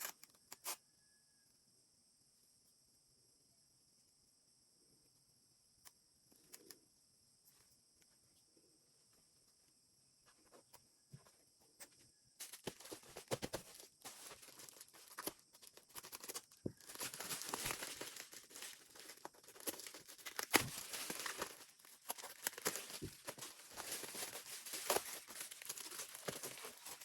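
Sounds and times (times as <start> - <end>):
packaging crinkling: 12.4 - 27.0.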